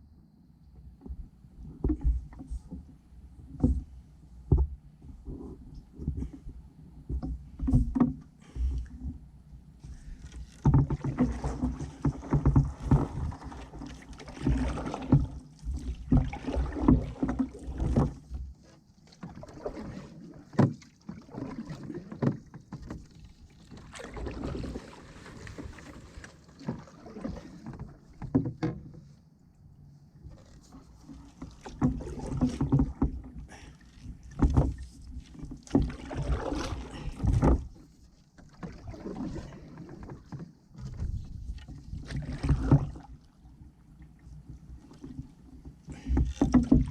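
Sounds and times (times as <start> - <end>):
canoe paddle strokes in water: 0.8 - 46.9
paddle knocks: 1.0 - 5.4, 7.1 - 9.2, 10.4 - 29.1, 30.4 - 43.1, 44.5 - 46.9
water splashes and drips: 10.5 - 28.4, 31.1 - 37.8, 38.4 - 40.4, 41.6 - 43.4.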